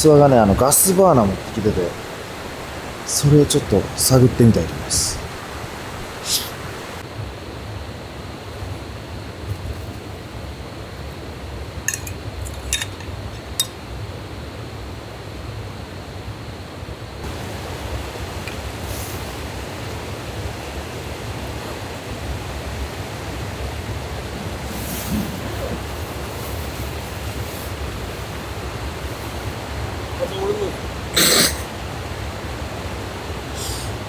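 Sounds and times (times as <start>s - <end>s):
rushing outdoor background noise: 0.0s - 34.0s
gear clinking: 11.9s - 13.8s.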